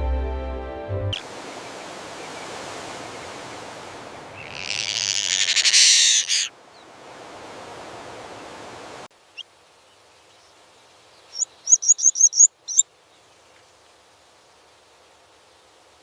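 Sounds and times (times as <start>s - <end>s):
soft music: 0.0s - 1.2s
steady hiss: 1.2s - 5.6s, 6.4s - 16.0s
high chirring animal call: 4.3s - 6.5s, 11.3s - 12.8s.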